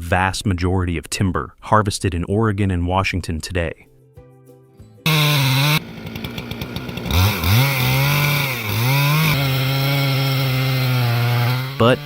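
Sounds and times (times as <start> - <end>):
chainsaw running: 5.0 - 12.0.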